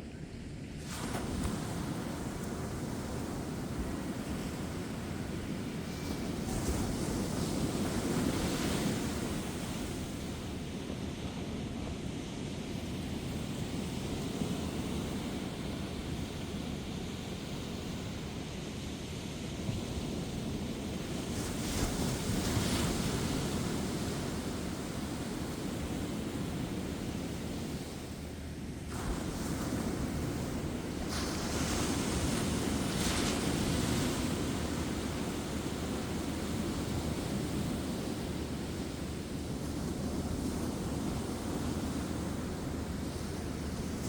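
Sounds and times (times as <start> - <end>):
ocean waves breaking on beach: 0.8 - 44.0.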